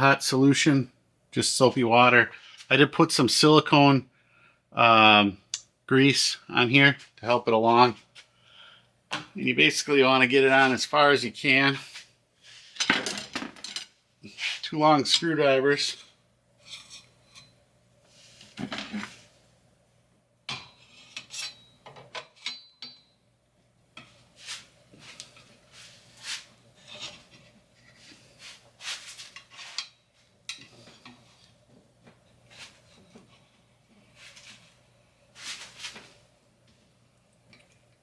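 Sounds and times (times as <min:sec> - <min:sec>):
screwdrivers scraping on metal: 0:16.0 - 0:17.6, 0:20.7 - 0:23.0.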